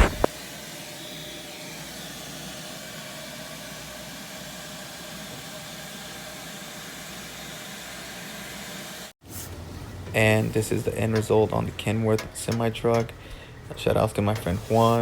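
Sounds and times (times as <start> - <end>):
vacuum cleaner running: 0.0 - 9.1.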